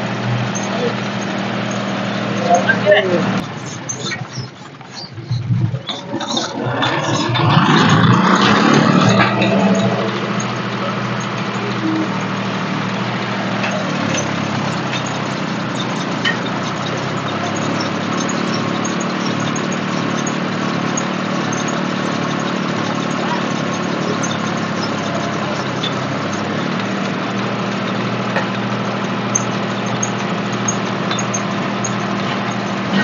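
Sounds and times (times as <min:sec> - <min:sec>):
tractor diesel engine revving: 0:00.0 - 0:33.0.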